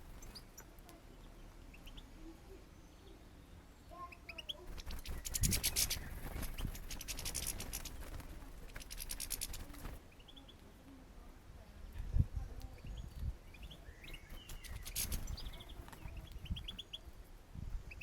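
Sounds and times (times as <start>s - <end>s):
birds chirping: 0.0s - 18.0s
scratchy clicking and rustling: 4.7s - 10.0s, 14.4s - 16.0s.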